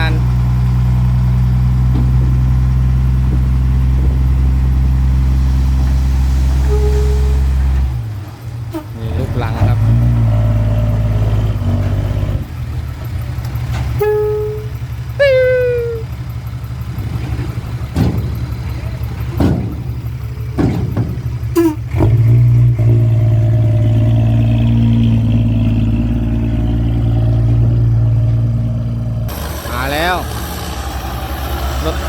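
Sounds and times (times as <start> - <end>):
diesel engine running: 0.0 - 32.0
short pitched tones: 6.6 - 7.9, 14.0 - 16.1.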